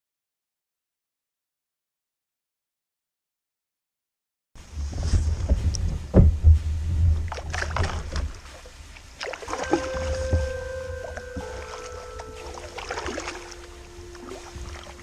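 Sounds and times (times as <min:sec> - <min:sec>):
low rumble: 0:04.6 - 0:15.0
paddle strokes splashing: 0:04.7 - 0:15.0
knocks against hull: 0:05.4 - 0:08.4
music with held notes: 0:09.5 - 0:15.0.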